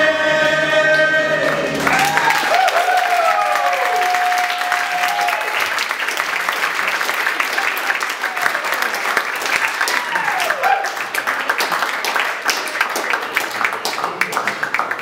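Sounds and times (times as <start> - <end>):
audience applauding and cheering: 0.5 - 15.0
long held whoop: 1.8 - 5.6, 9.9 - 11.0.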